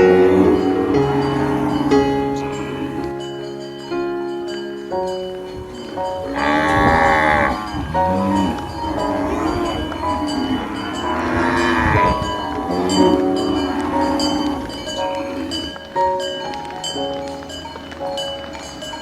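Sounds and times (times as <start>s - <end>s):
background music: 0.0s - 19.0s
cattle mooing: 6.1s - 15.8s.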